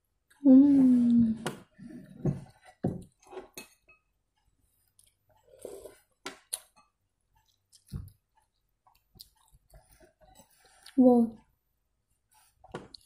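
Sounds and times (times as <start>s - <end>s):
person chewing noodles: 7.4s - 11.0s.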